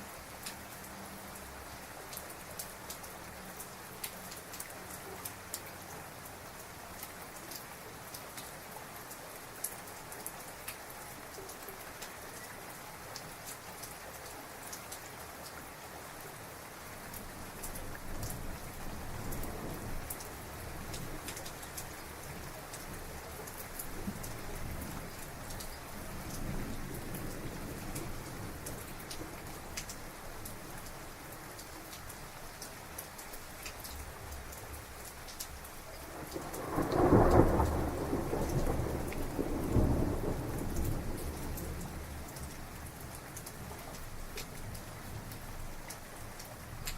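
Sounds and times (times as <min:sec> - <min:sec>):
heavy rain falling: 0:00.0 - 0:46.9
rolling thunder: 0:36.2 - 0:42.4.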